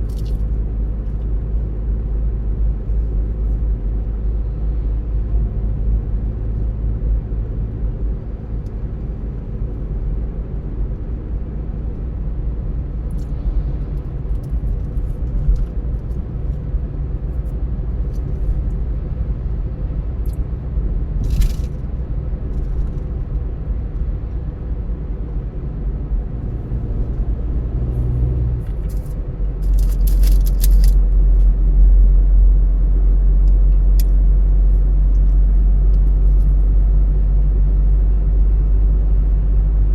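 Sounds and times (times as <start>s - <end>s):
car engine and tyres rumbling: 0.0s - 39.9s
faint clicks and rattles: 28.7s - 31.5s.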